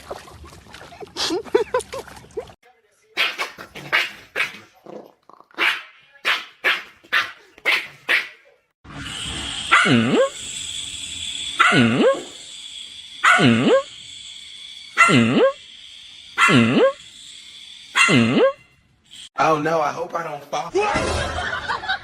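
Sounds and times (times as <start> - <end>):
dog barking: 3.2 - 4.6, 5.6 - 8.4, 9.7 - 10.3, 11.6 - 12.2, 13.2 - 13.8, 15.0 - 15.3, 16.4 - 16.9, 18.0 - 18.5.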